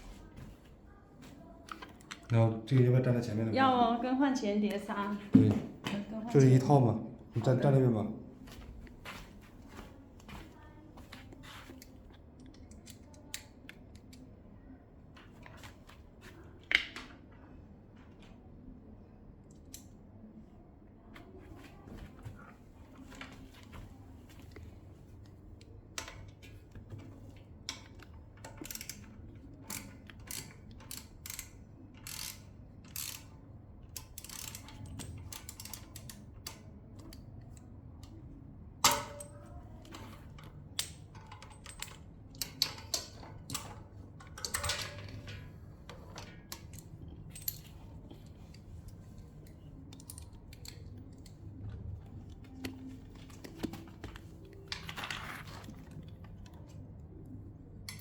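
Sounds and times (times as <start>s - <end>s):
hand tools clicking and tapping: 38.8s - 48.6s.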